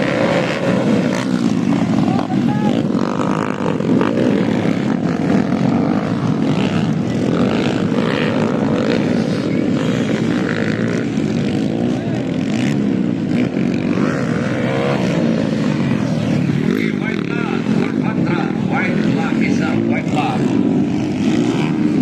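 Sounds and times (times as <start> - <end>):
motocross bike engines revving: 0.0 - 22.0.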